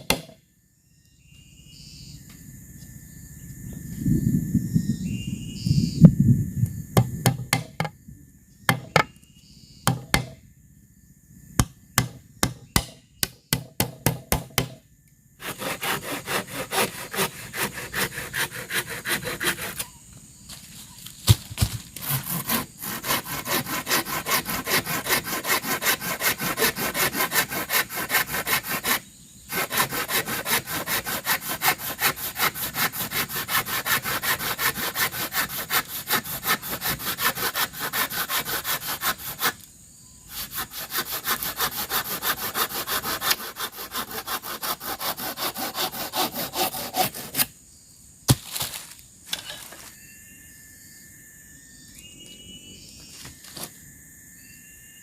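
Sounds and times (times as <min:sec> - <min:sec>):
sharp knock: 0:07.0 - 0:07.9
hand saw cutting bamboo: 0:15.4 - 0:19.9, 0:21.9 - 0:39.6, 0:40.3 - 0:47.5.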